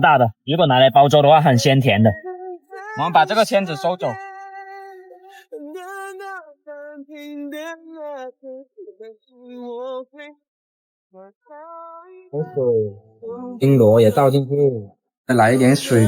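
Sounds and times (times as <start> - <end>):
woman singing slow melody: 2.2 - 3.0, 4.1 - 10.4, 11.2 - 13.6.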